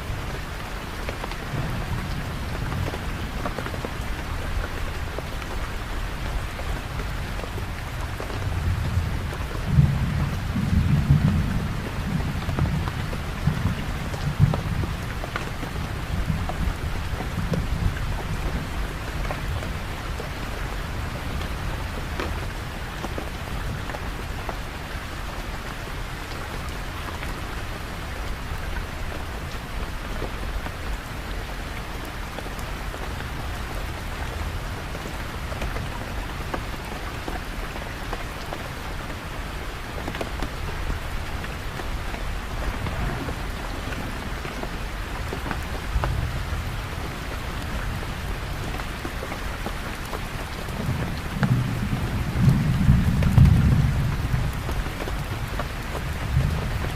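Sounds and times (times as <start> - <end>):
low rumble of thunder: 0.0 - 24.3, 40.3 - 49.2, 50.4 - 56.9
steady rain falling: 0.0 - 56.9.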